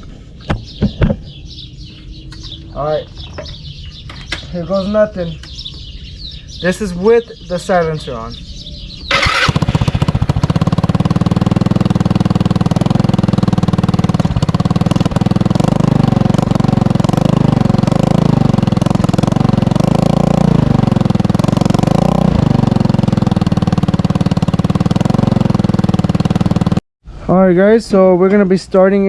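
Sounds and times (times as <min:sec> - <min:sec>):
scooter engine idling: 0:08.5 - 0:26.8.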